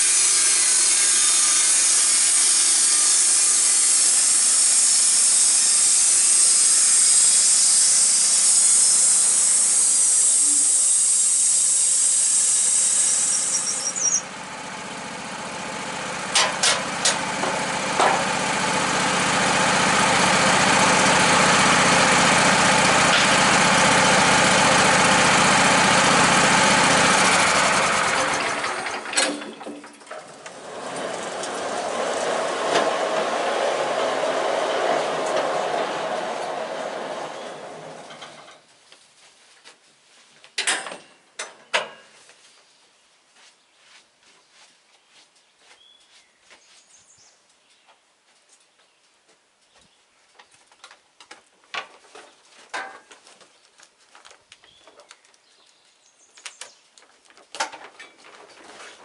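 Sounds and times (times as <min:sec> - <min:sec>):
sawmill saw cutting log: 0:00.0 - 0:29.5, 0:30.2 - 0:38.5
engine running: 0:00.0 - 0:38.6.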